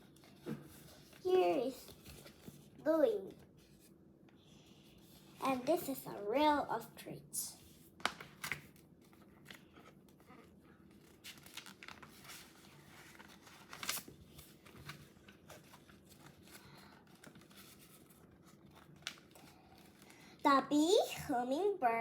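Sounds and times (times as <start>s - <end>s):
paper rustling and clicking: 0.0s - 3.8s, 8.0s - 20.3s.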